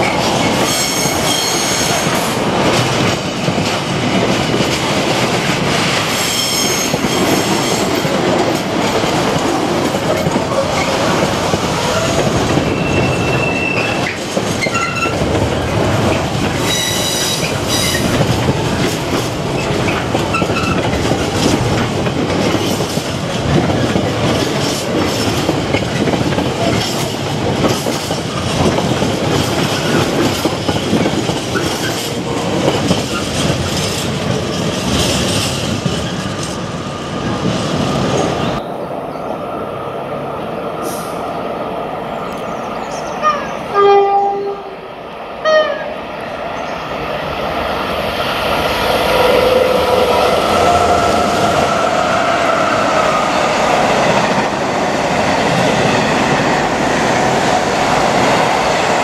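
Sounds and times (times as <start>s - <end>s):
locomotive horn blasts: 43.2s - 44.8s, 45.4s - 45.9s.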